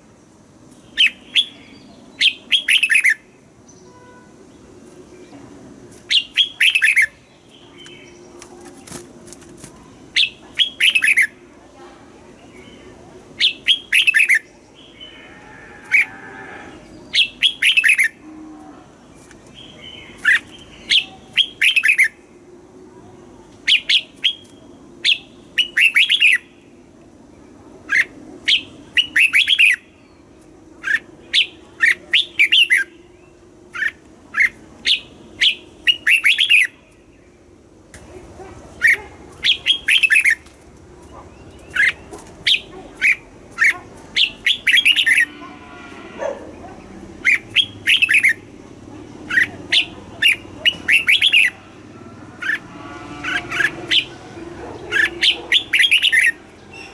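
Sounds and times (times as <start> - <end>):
bulbul singing: 6.1 - 8.4, 27.9 - 37.5, 41.1 - 45.4, 47.0 - 48.5, 49.3 - 51.6, 54.8 - 56.9.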